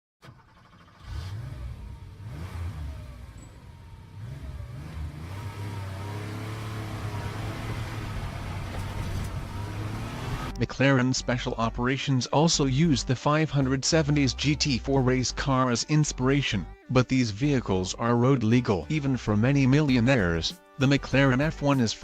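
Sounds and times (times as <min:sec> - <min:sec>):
car engine revving: 0:00.2 - 0:10.6.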